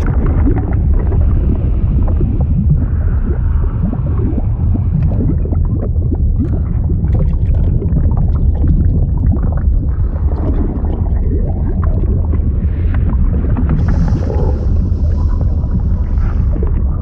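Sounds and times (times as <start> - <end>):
water churning and gurgling: 0.0 - 17.0.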